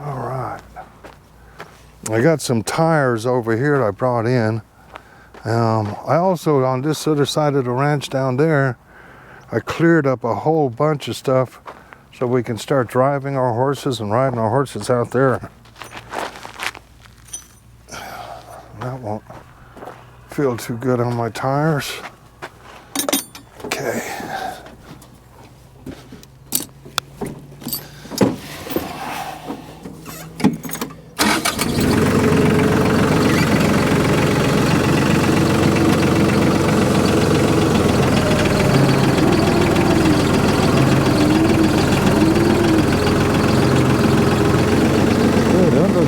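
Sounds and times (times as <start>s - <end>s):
tractor engine running: 21.1s - 46.0s.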